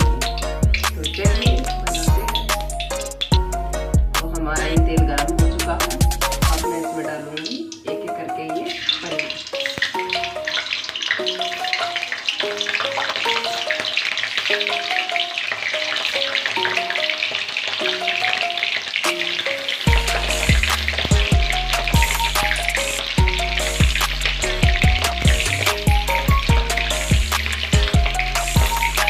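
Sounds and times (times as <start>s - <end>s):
paneer sizzling in hot oil: 0.0s - 4.0s, 5.8s - 29.0s
bass beat: 0.0s - 6.7s, 19.9s - 29.0s
background music with melody: 0.0s - 29.0s.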